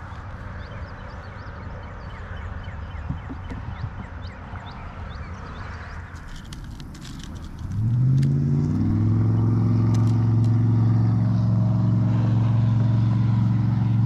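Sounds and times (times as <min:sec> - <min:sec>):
birds chirping: 0:00.0 - 0:08.0, 0:08.7 - 0:12.2
steady low rumble: 0:00.0 - 0:14.0.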